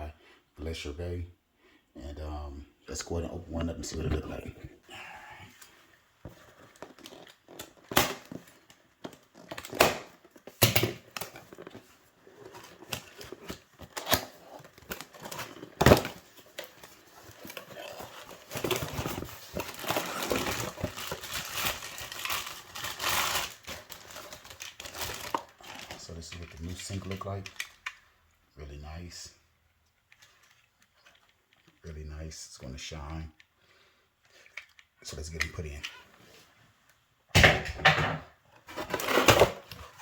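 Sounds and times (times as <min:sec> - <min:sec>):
plastic wrapping crinkling: 0:11.1 - 0:28.0.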